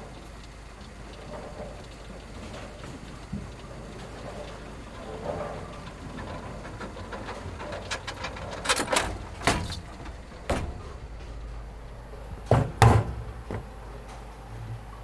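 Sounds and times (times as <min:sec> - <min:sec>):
low steady hum: 0:00.0 - 0:15.0
loud knocks and clatters: 0:06.1 - 0:11.5, 0:12.4 - 0:13.7.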